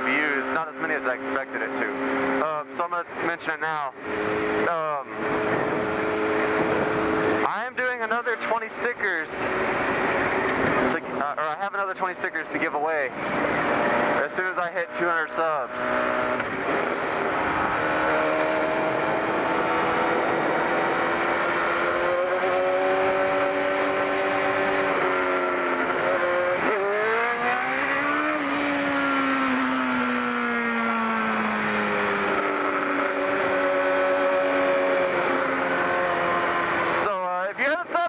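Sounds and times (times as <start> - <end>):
motorcycle engine running: 0.0 - 38.0
wind rush over microphone: 5.2 - 7.4.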